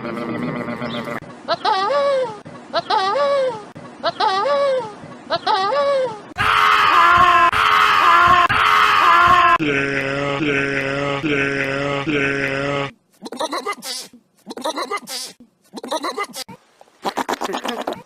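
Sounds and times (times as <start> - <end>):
screaming bleats: 6.4 - 9.6.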